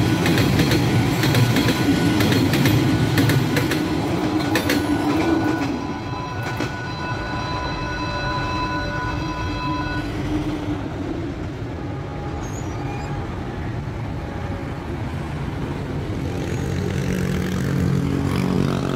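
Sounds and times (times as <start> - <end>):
train rumbling: 0.0 - 18.9
crossing signal electronic tone: 4.6 - 10.6
vehicle engines: 10.2 - 18.9.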